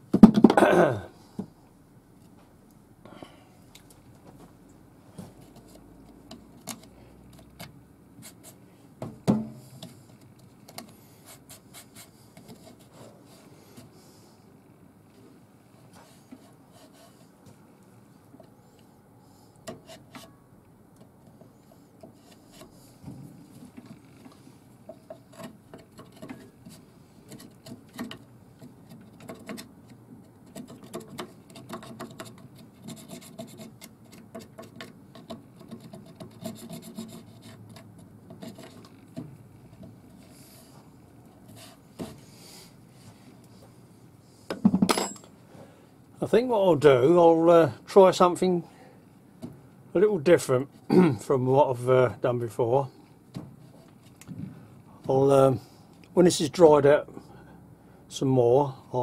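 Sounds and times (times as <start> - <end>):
scraping wood by hand: 21.4 - 42.5.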